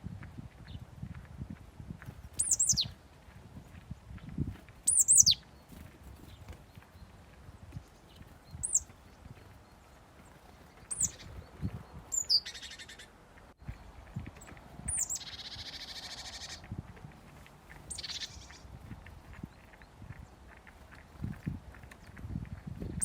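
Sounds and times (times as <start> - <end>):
songbirds chirping: 0.2 - 23.0
buzzy bird trill: 2.4 - 2.9, 4.9 - 5.8, 8.5 - 8.9, 10.7 - 13.1, 14.8 - 16.6, 17.8 - 18.7.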